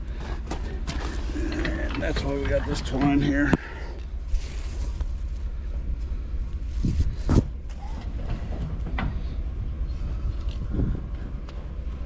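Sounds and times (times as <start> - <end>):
engine idling: 0.0 - 12.0
knocks and clanks of equipment: 0.2 - 3.6, 7.2 - 9.3.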